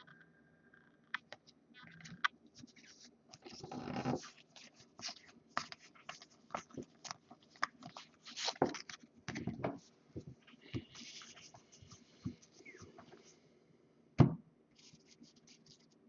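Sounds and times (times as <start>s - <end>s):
cards clicking and rustling: 5.0s - 9.5s.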